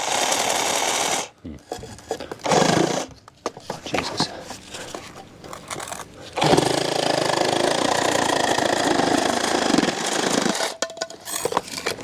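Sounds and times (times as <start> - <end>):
power saw cutting pipe: 0.0 - 1.3, 2.4 - 3.1, 6.4 - 10.8.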